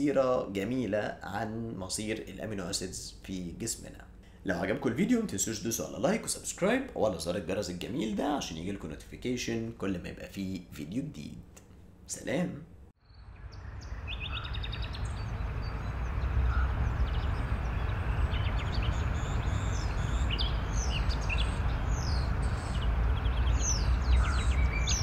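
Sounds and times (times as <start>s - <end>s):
low rushing background: 12.7s - 25.0s
small birds chirping and trilling: 13.0s - 25.0s.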